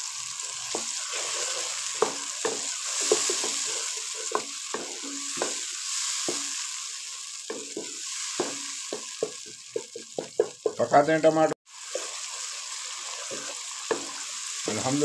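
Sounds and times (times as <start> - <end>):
paste sizzling in hot fat: 0.0 - 15.0
wooden spatula scraping a pan: 0.7 - 6.6, 11.8 - 14.4.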